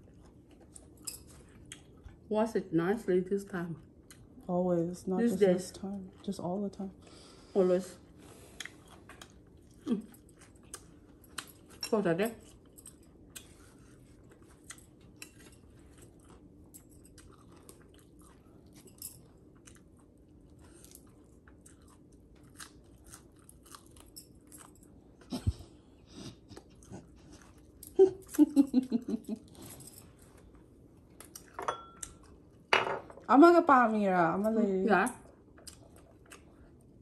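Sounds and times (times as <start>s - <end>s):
person chewing and crunching food: 0.0s - 2.3s, 8.2s - 28.6s, 29.4s - 32.7s, 35.2s - 37.0s.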